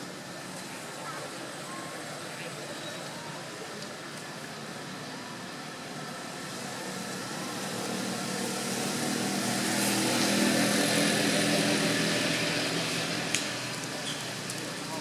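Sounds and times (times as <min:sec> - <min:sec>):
engine passing by: 0:06.3 - 0:15.0.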